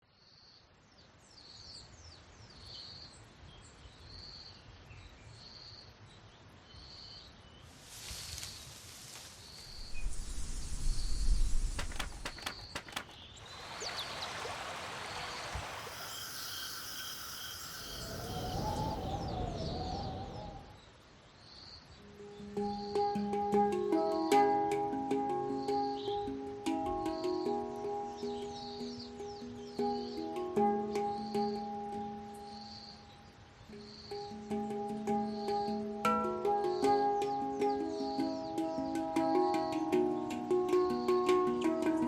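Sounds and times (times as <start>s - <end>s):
whooshing noise swells: 7.7s - 12.7s, 15.5s - 20.8s
sharp clicks: 9.8s - 13.2s
wavering whistle-like tone: 15.6s - 20.8s
short high chirp: 15.8s - 20.7s.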